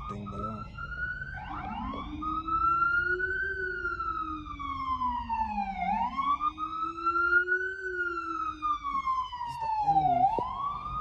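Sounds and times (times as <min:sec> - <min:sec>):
siren wailing: 0:00.0 - 0:11.0.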